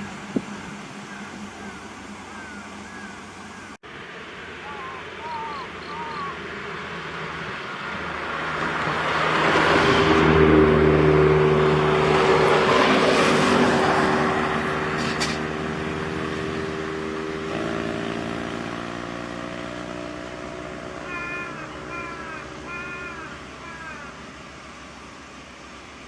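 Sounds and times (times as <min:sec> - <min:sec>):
truck engine driving past: 0:00.0 - 0:26.0
tyre and road noise: 0:00.0 - 0:26.0.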